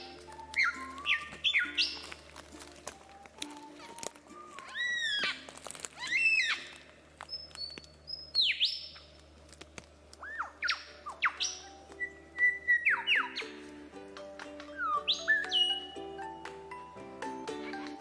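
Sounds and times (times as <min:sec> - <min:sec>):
soft background music: 0:00.0 - 0:06.1, 0:10.3 - 0:18.0
birds calling with whistled notes: 0:00.0 - 0:09.2, 0:10.2 - 0:18.0.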